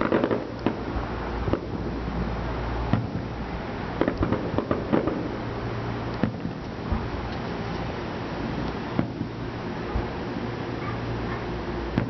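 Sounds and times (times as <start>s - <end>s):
firework shells bursting: 0.0s - 2.0s, 2.9s - 5.4s, 6.0s - 10.1s
firework crackles: 0.0s - 12.0s.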